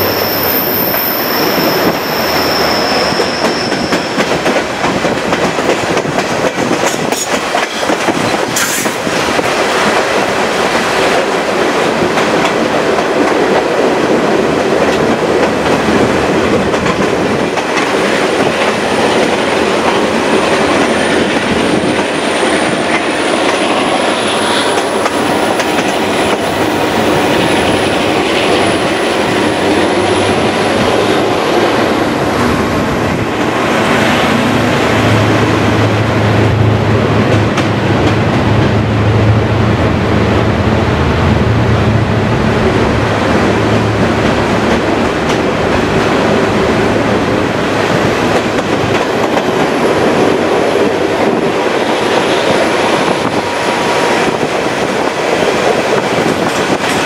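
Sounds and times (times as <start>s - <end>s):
high wheel squeal: 0.0s - 4.4s
heavy low tunnel rumble: 0.0s - 57.0s.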